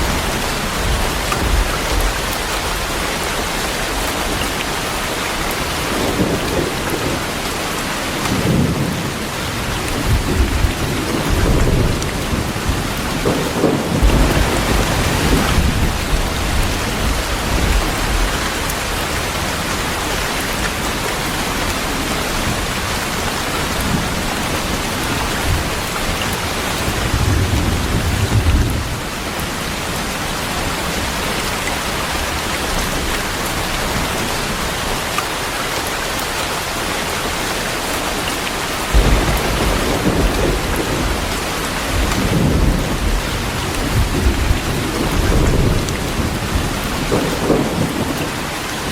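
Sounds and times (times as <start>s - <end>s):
thunder rumbling: 0.0s - 4.9s, 5.6s - 29.4s, 38.8s - 48.9s
heavy rain falling: 0.0s - 48.9s.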